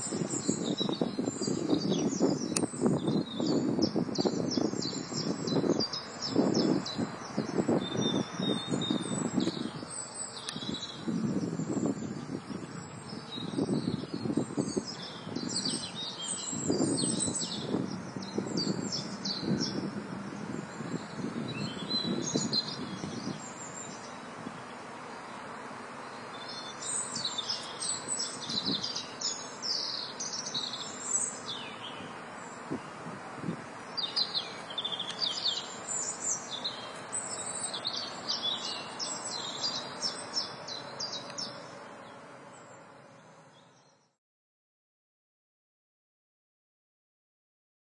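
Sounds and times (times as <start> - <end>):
steady hiss: 0.0 - 43.5
songbirds chirping and twittering: 0.0 - 44.2.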